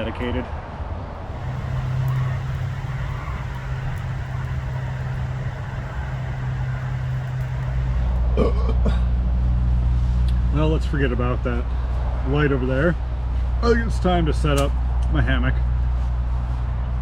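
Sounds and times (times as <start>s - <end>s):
low rumble of expressway traffic: 1.1s - 10.4s.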